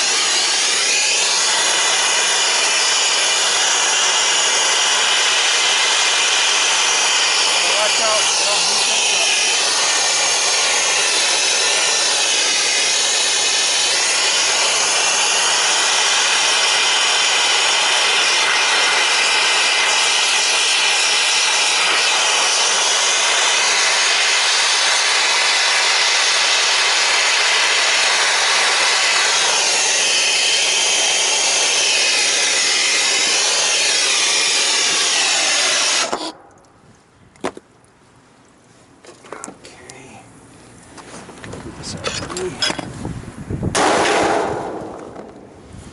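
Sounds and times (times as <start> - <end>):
gas torch hissing: 0.0 - 36.4.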